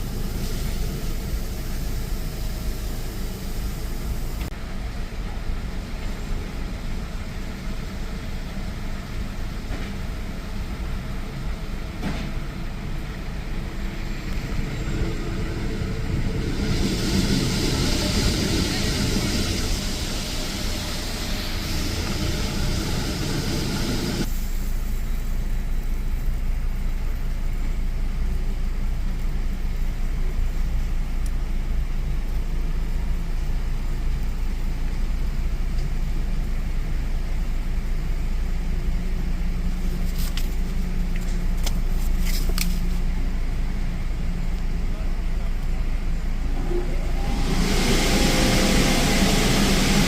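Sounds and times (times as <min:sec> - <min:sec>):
loud rushing hiss: 0:00.0 - 0:04.8, 0:10.2 - 0:26.4, 0:46.2 - 0:50.0
car engine idling: 0:00.0 - 0:50.0.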